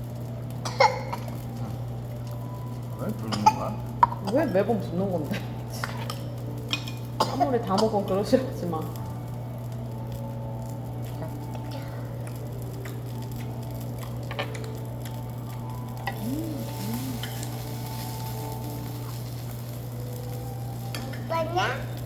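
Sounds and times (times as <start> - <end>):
food sizzling: 0.0 - 22.0
low hum: 8.8 - 21.3.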